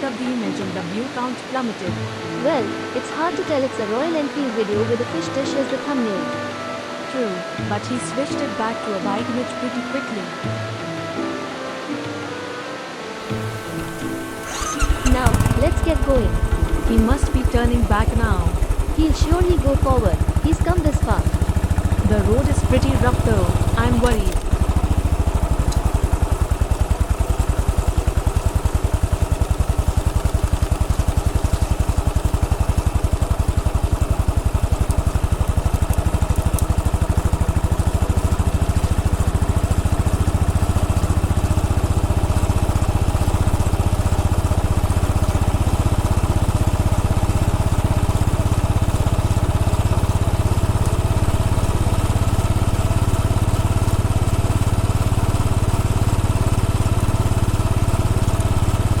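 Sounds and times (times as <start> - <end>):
motorcycle engine running at low speed: 13.2 - 59.0.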